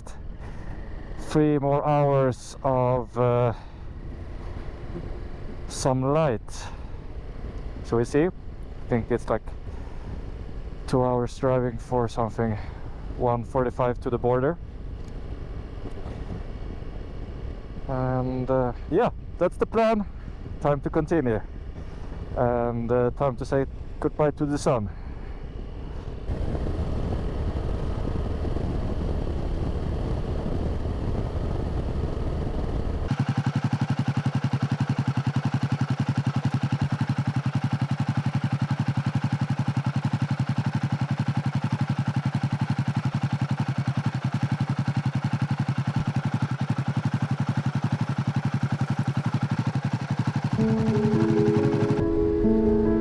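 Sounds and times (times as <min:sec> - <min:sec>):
motorcycle engine drone: 0:00.0 - 0:53.0
wind rumble: 0:25.1 - 0:33.1.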